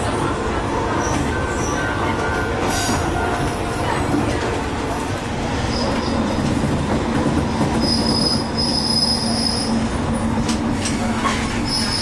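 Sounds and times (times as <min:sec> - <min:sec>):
wheels rumbling on rail: 0:00.0 - 0:12.0
high wheel squeal: 0:07.8 - 0:09.8, 0:11.6 - 0:12.0.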